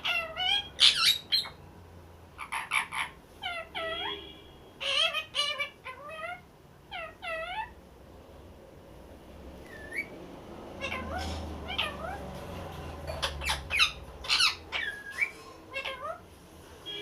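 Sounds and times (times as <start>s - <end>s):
parrot squawking and whistling: 0.0s - 1.6s, 2.4s - 4.2s, 4.8s - 7.8s, 9.6s - 10.2s, 10.8s - 12.2s, 13.1s - 16.2s.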